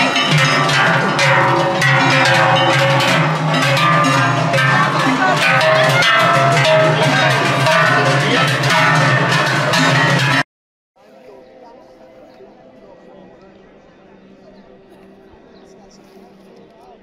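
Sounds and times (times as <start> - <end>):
cowbells ringing and clanging: 0.0 - 10.4.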